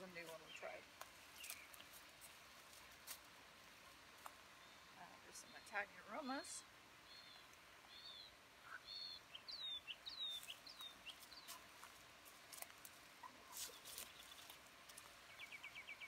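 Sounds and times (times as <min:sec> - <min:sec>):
rustling foliage: 0:00.0 - 0:16.0
faint small bird chirps: 0:07.0 - 0:11.6.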